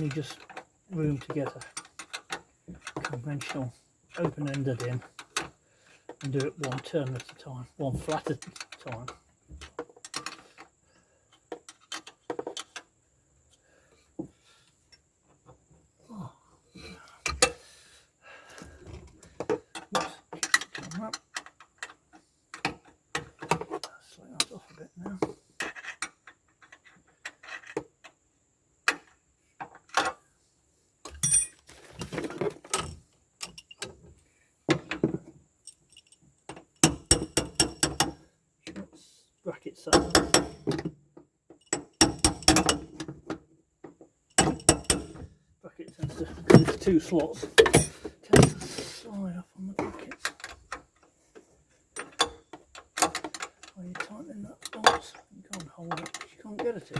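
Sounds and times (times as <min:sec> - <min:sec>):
metal tools clinking and scraping: 0:19.3 - 0:21.9, 0:31.1 - 0:33.9, 0:36.8 - 0:38.2, 0:39.9 - 0:40.9, 0:41.6 - 0:43.2, 0:44.3 - 0:45.3, 0:45.9 - 0:50.8, 0:51.9 - 0:56.9
spanner clicking against a bolt: 0:36.8 - 0:38.2, 0:39.9 - 0:40.9, 0:41.6 - 0:43.1, 0:44.4 - 0:45.2.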